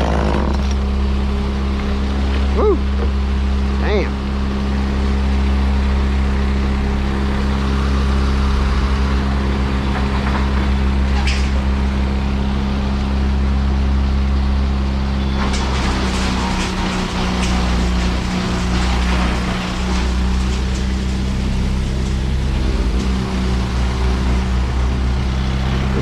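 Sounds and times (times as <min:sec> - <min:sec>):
heavy machine engine running: 0:00.0 - 0:26.0.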